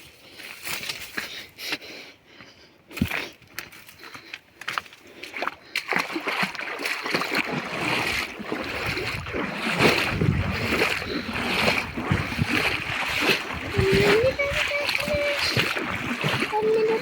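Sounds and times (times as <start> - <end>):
water splashing and sloshing: 4.0 - 17.0.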